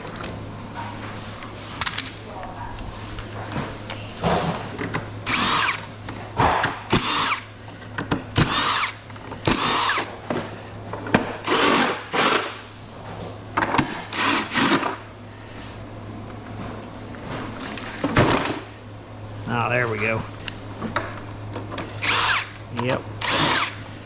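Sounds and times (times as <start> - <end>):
steady low hum: 0.0 - 24.0
power drill bursts: 5.2 - 5.9, 6.9 - 7.5, 8.4 - 10.1, 11.4 - 12.6, 14.1 - 15.0, 22.0 - 22.5, 23.2 - 23.8.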